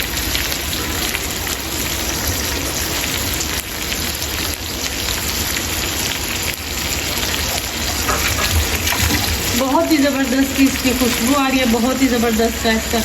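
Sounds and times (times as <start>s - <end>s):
chicken sizzling on a griddle: 0.0s - 13.0s.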